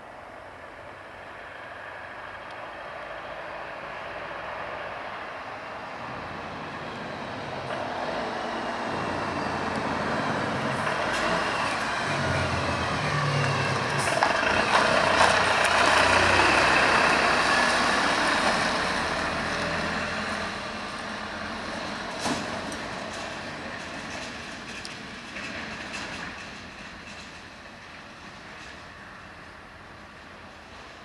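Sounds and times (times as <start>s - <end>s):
heavy vehicle passing: 3.9s - 26.6s.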